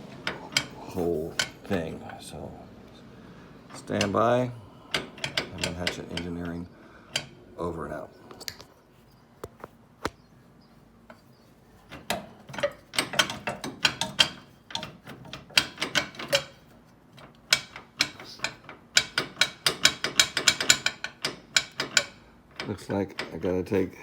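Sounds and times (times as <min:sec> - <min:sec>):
ratchet wrench clicking: 0:17.5 - 0:22.2.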